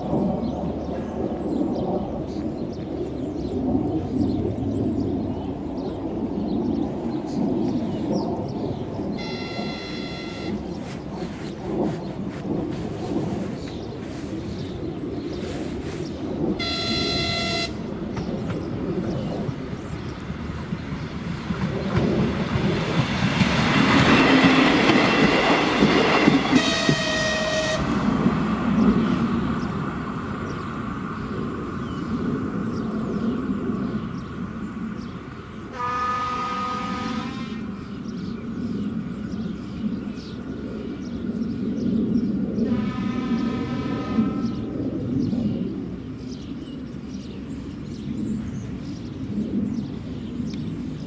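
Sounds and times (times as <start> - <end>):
train horn blast: 9.2 - 10.9, 16.6 - 18.0, 26.5 - 28.1, 35.7 - 37.8, 42.6 - 44.7
train wheels clacking on rails: 16.6 - 29.0.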